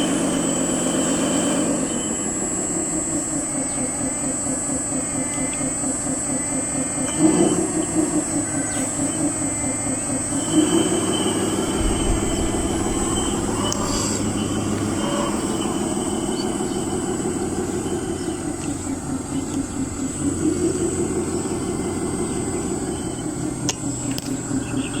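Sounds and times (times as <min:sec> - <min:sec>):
electric motor and pump humming: 0:00.0 - 0:25.0
thin high whine: 0:07.1 - 0:23.4.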